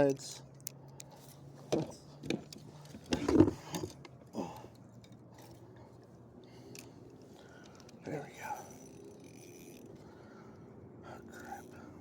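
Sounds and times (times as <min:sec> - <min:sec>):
fishing reel clicks and knocks: 0:07.6 - 0:10.0.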